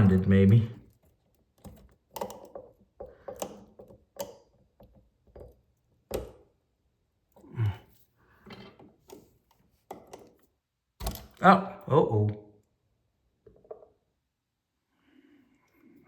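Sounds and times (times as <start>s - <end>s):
screwdriver clicking and scraping: 0.8s - 6.3s.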